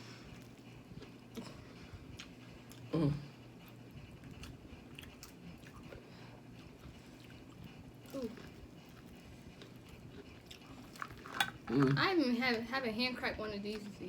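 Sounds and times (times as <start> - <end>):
chewing seafood: 0.0 - 12.1
person humming mm: 2.9 - 3.3.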